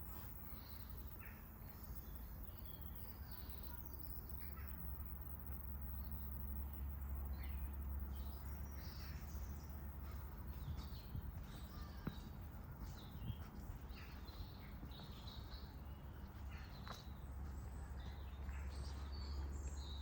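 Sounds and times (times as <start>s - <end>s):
steady low rumble: 4.3s - 20.0s
birds chirping and calling: 7.2s - 20.0s.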